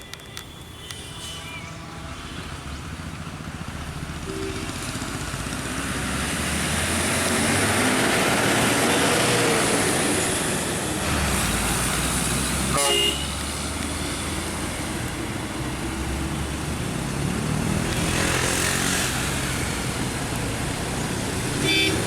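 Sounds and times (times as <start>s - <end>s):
vehicle approaching: 2.8s - 12.7s.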